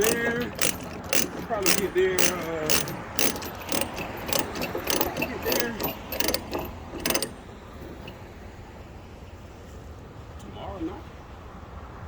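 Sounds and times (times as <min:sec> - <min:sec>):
ratchet clicking: 0:00.0 - 0:08.2.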